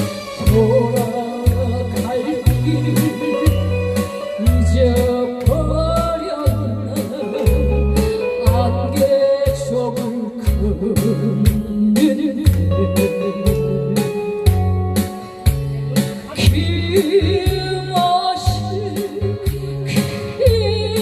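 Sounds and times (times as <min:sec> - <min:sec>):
pulsing bass: 0:00.0 - 0:11.9
upbeat song over sound system: 0:00.0 - 0:21.0.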